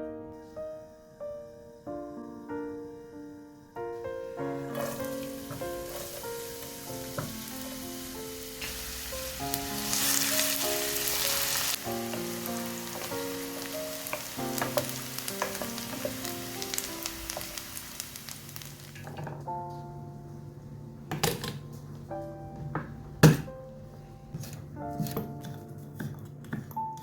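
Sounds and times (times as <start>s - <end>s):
soft piano music: 0.0s - 27.0s
food sizzling in a pan: 0.4s - 19.2s.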